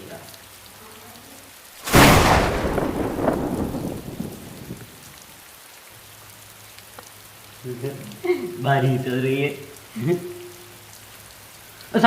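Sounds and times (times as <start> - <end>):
steady rain: 0.0 - 12.0
loud thunderclap rumbling: 1.8 - 5.2.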